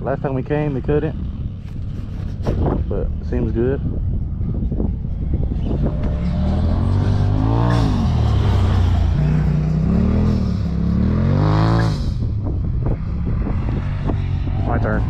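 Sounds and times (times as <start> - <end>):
dirt bike engine revving: 5.3 - 15.0.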